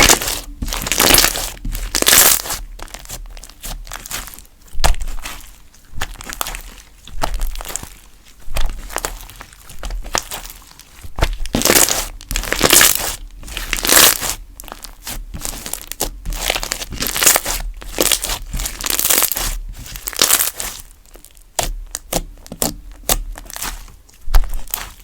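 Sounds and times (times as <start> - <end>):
slime squished by hand: 0.0 - 25.0.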